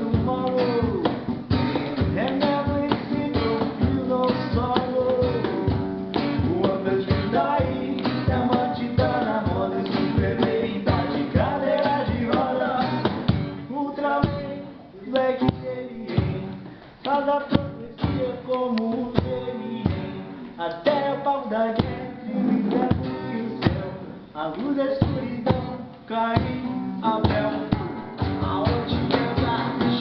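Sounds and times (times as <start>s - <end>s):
person singing: 13.7s - 30.0s.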